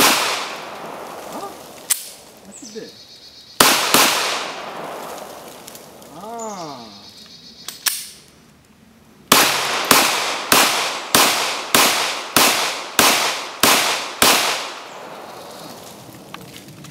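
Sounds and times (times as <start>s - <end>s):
pistol shots echoing: 0.0s - 2.2s, 3.6s - 5.9s, 9.3s - 15.8s.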